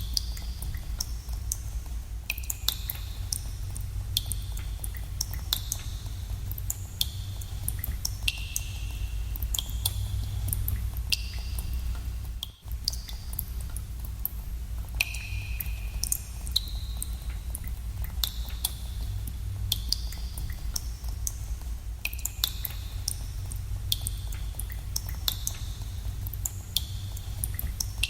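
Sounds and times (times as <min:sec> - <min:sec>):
low rumble of cave ambience: 0:00.0 - 0:28.0
water drops plinking with echo: 0:02.3 - 0:12.0, 0:15.0 - 0:18.9.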